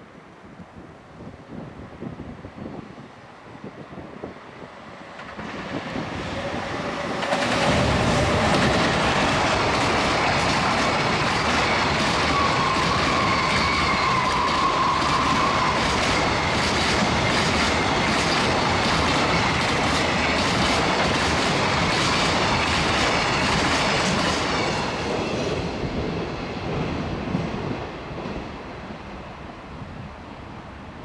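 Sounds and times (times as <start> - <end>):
freight train wheels clattering: 5.1 - 28.6.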